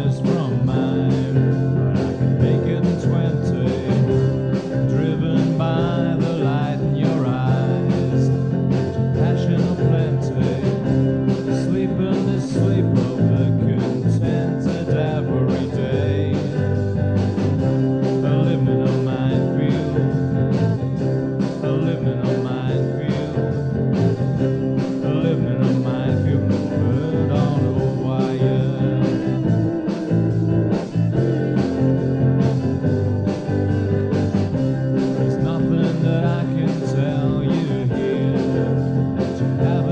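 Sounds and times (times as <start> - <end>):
band playing rock music: 0.0 - 39.9
steady drum beat: 0.0 - 39.9.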